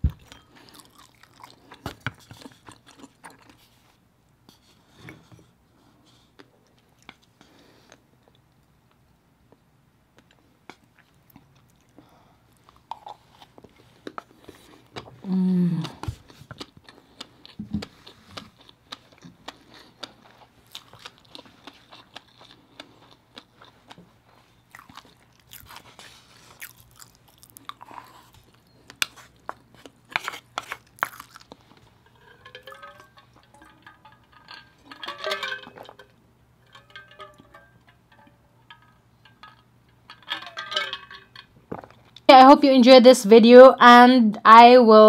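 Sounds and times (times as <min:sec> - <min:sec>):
chewing and lip smacking: 0:00.2 - 0:03.6, 0:15.8 - 0:31.9.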